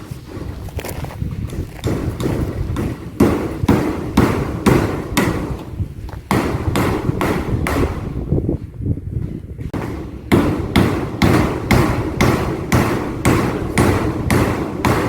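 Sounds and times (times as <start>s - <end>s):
hammer striking nails: 1.8s - 8.2s, 9.7s - 15.0s.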